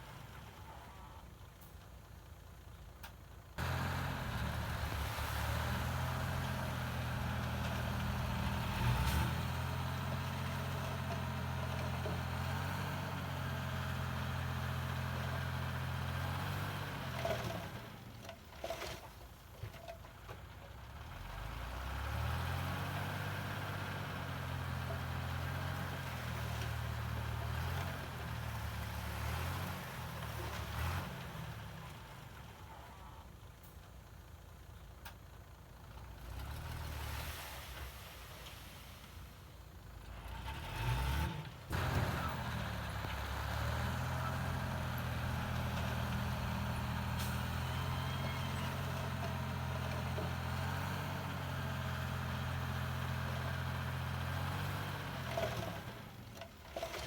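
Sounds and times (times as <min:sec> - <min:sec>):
diesel machinery engine running: 0:02.4 - 0:18.2, 0:39.9 - 0:57.0.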